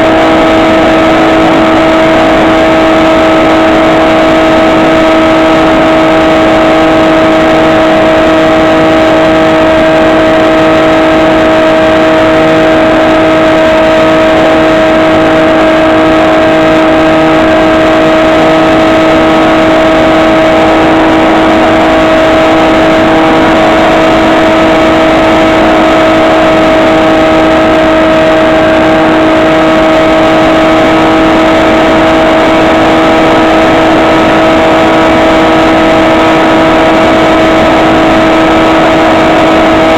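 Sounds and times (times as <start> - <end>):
electric motor and propeller whine: 0.0 - 39.9.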